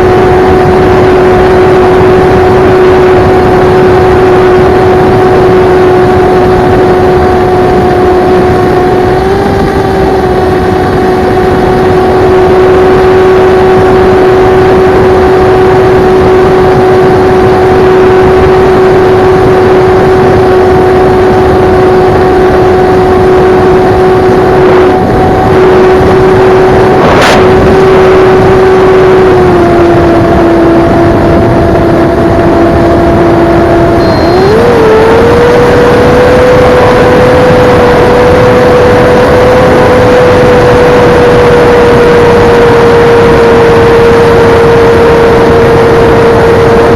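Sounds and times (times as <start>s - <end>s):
drone propeller hum: 0.0s - 46.9s
rushing air: 23.2s - 32.4s.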